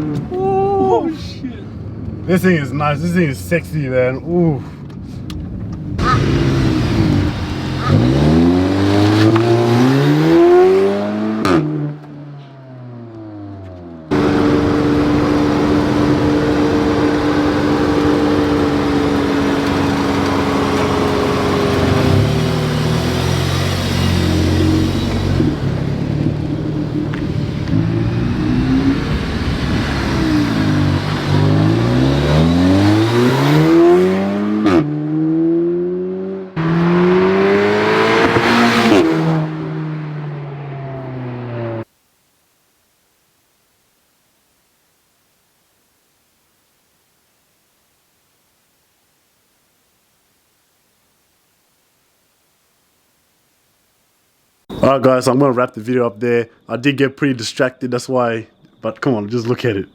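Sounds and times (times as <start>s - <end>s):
car engine accelerating: 5.6s - 41.9s.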